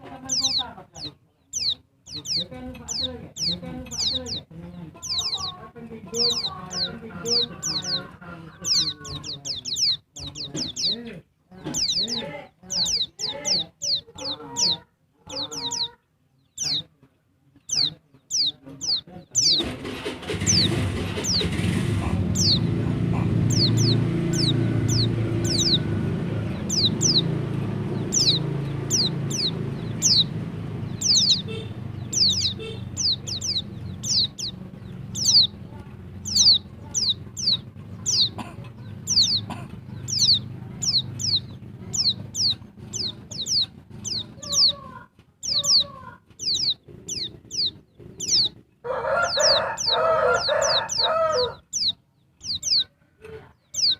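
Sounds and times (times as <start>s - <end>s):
low rumble: 20.4s - 44.6s.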